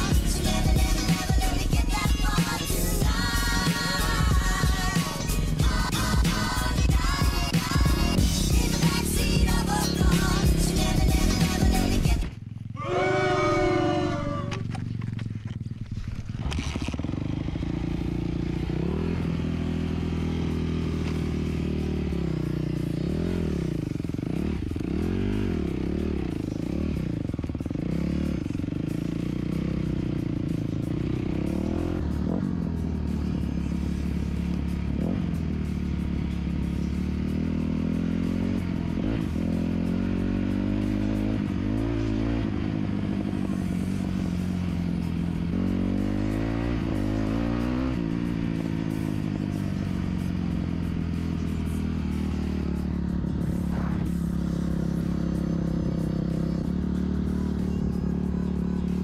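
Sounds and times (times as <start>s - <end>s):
dirt bike engine revving: 12.7s - 59.0s.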